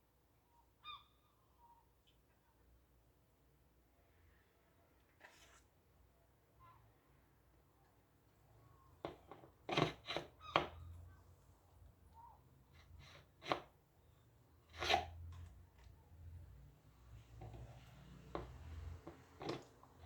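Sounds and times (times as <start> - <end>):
plastic parts clicking and knocking: 9.0 - 10.8, 17.3 - 20.0.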